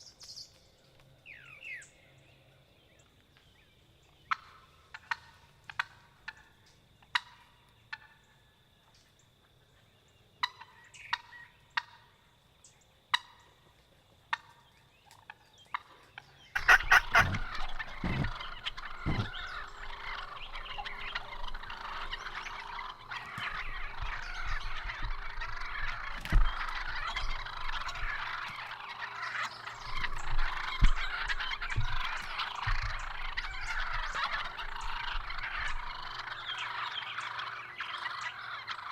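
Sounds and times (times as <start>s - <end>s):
low thumps: 16.6s - 20.0s
turkeys gobbling: 16.6s - 38.9s.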